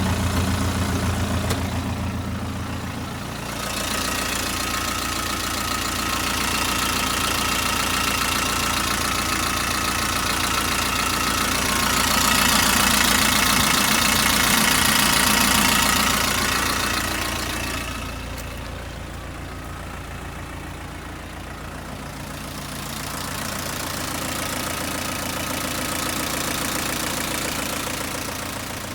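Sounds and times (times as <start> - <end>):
diesel engine idling: 0.0 - 28.9.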